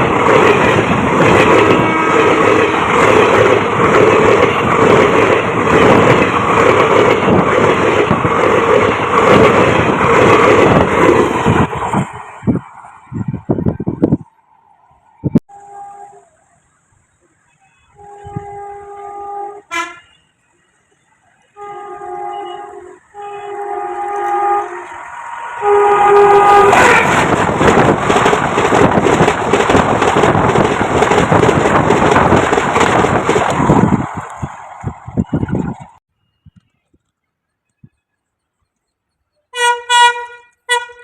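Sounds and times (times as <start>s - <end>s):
train passing rumble and clatter: 0.0s - 36.1s
locomotive horn blasts: 1.6s - 2.8s, 15.5s - 16.5s, 17.4s - 20.6s, 21.5s - 27.2s, 39.5s - 41.0s.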